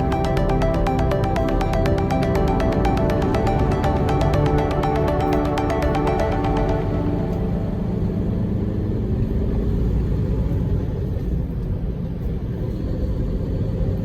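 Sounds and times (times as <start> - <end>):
truck engine and road noise: 7.4 - 14.0.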